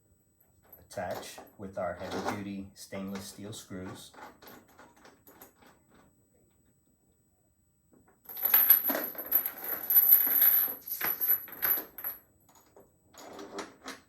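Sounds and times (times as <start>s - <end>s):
metal chain rattling and jingling: 8.3s - 14.0s.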